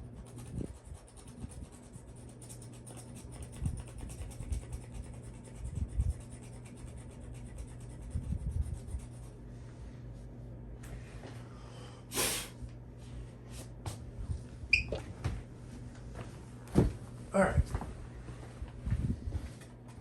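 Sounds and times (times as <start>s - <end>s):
knife scratching card coating: 0.2s - 9.2s.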